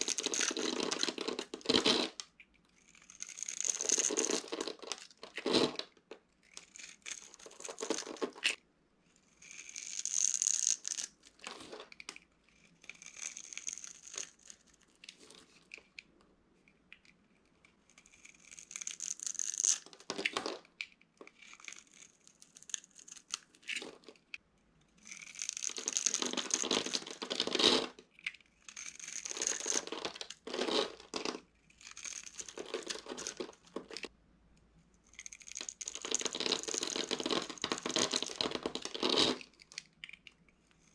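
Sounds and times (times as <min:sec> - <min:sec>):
dry soap crunching: 0:00.0 - 0:08.6, 0:12.6 - 0:14.8, 0:25.0 - 0:34.1, 0:35.1 - 0:40.9.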